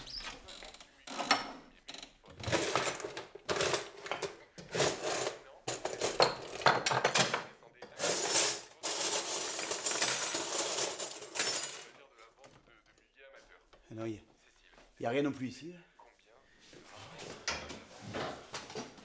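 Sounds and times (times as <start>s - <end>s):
objects clinking and rattling: 2.4s - 12.0s.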